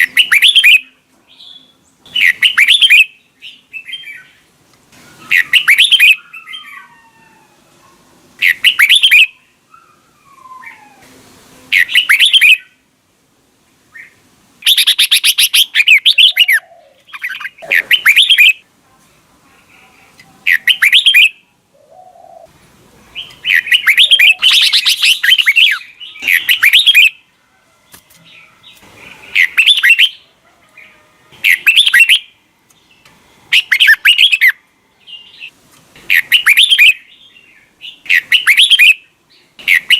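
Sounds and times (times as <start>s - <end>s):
bird warbling song: 0.0s - 4.4s, 5.0s - 7.0s, 8.4s - 11.0s, 11.7s - 12.8s, 13.9s - 18.6s, 20.4s - 22.5s, 23.1s - 27.2s, 28.2s - 35.5s, 36.1s - 39.9s
faint bird calls: 0.0s - 12.8s, 13.9s - 18.6s, 23.1s - 32.4s.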